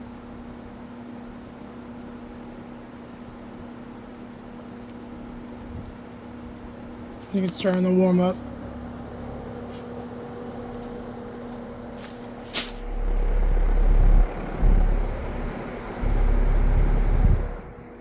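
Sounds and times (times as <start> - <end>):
box fan running: 0.0 - 18.0
deep low rumble: 12.6 - 18.0.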